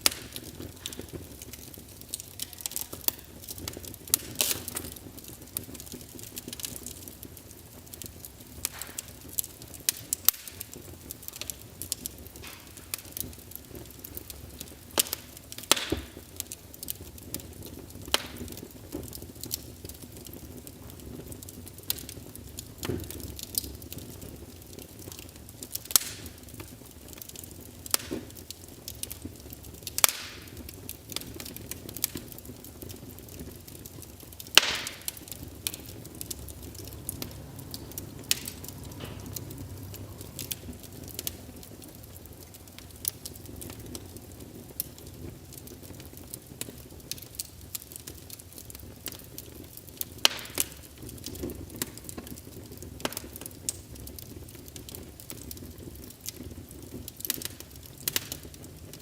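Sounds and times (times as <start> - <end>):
loud sharp pops: 0.0 - 5.0, 8.6 - 10.8, 15.0 - 16.2, 25.9 - 26.6, 29.9 - 30.6, 34.4 - 37.3, 50.2 - 50.8
low rush of flame: 0.0 - 59.0
wood fire crackling: 0.0 - 59.0.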